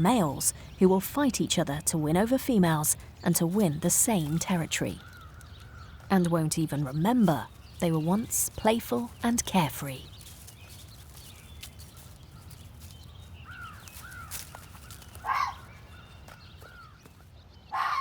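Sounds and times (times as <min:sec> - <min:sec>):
harsh animal calls: 0:15.2 - 0:15.7, 0:17.7 - 0:18.0.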